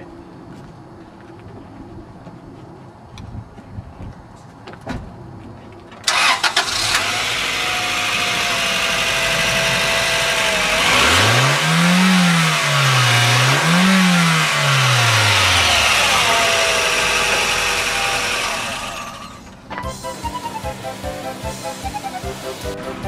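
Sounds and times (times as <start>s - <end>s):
car engine cranking: 6.0s - 22.7s
car engine idling: 6.1s - 22.8s
car engine revving: 6.1s - 22.8s.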